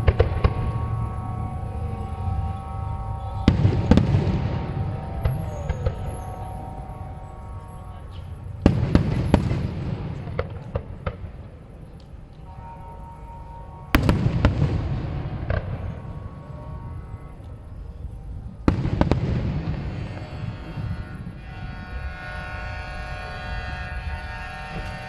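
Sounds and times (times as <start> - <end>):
low echoing rumble: 0.0 - 25.0
firework shells bursting with bangs: 8.6 - 11.4.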